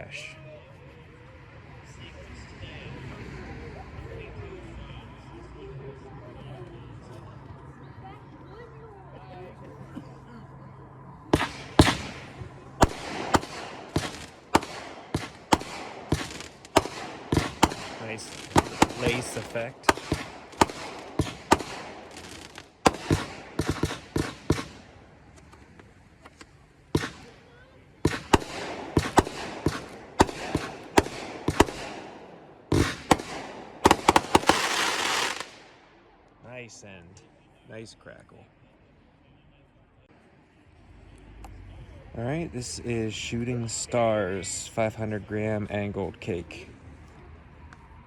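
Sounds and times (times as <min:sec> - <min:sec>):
firework bangs: 0:11.3 - 0:36.2
firework hiss: 0:11.4 - 0:24.9, 0:32.7 - 0:35.6.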